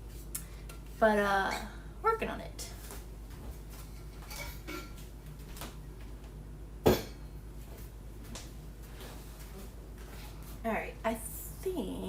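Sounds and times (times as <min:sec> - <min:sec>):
dishes and utensils clinking: 0:03.9 - 0:05.0
dishes clattering: 0:03.9 - 0:05.0.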